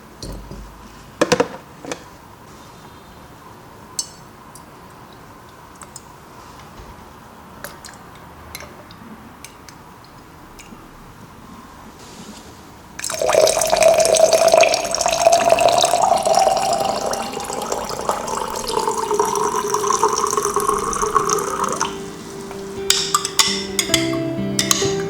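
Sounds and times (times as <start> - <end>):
water running into a container: 13.0 - 22.4.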